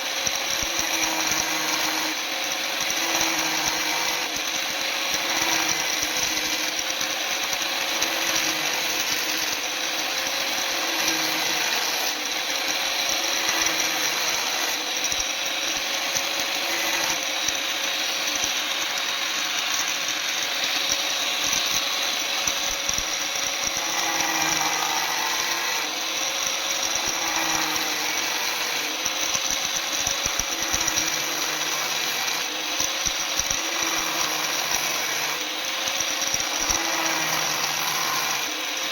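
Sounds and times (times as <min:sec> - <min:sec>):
electric power tool running: 0:00.0 - 0:38.9.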